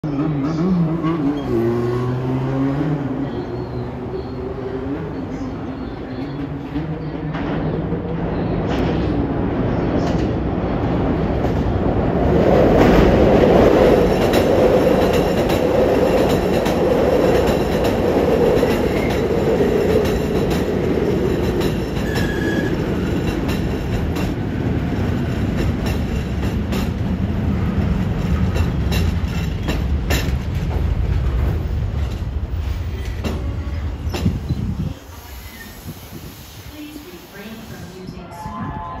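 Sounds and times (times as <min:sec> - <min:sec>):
brake squeals: 0:03.2 - 0:06.3, 0:22.0 - 0:22.8
wheels clicking over rail joints: 0:12.8 - 0:34.6.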